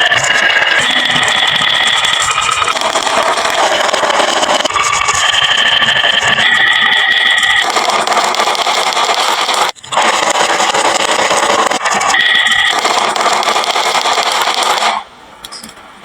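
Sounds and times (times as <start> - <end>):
marbles rattling down wooden run: 0.0 - 12.1.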